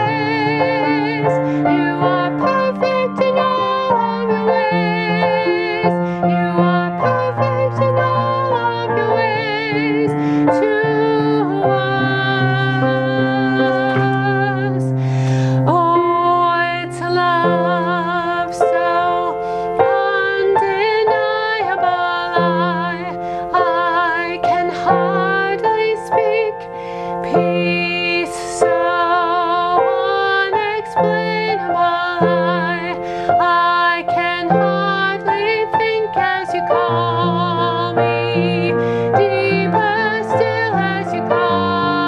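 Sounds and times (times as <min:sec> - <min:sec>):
held keyboard notes: 0:00.0 - 0:26.7
person singing with vibrato: 0:00.0 - 0:42.0.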